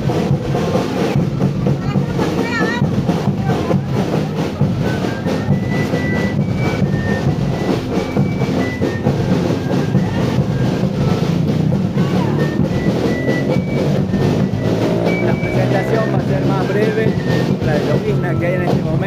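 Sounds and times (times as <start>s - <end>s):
drums beating: 0.0s - 19.0s
high held melody notes: 4.6s - 19.0s.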